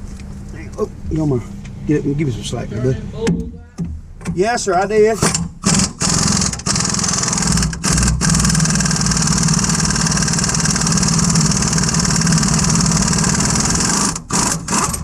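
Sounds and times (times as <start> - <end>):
impact wrench running: 5.2 - 15.0.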